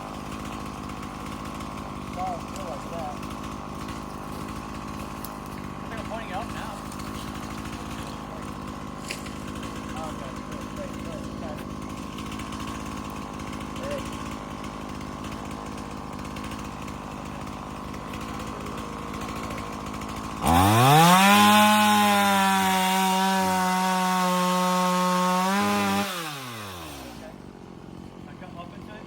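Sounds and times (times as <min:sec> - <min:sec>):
chainsaw revving: 0:00.0 - 0:29.0.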